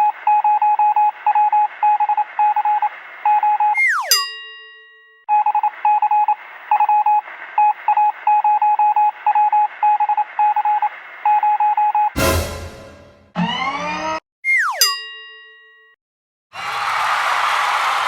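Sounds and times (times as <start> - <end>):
loud crash-like burst: 12.2 - 13.4.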